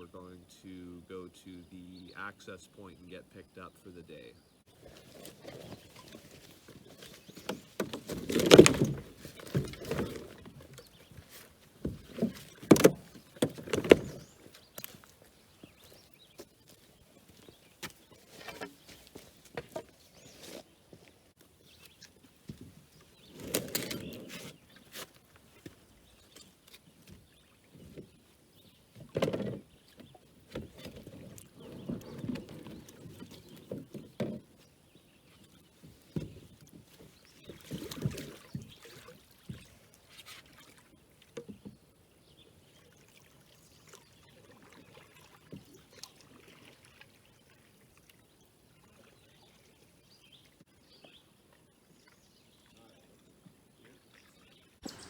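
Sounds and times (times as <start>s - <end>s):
paddle splashes: 4.6s - 55.0s
wooden knocks on hull: 7.3s - 14.4s, 36.1s - 36.9s.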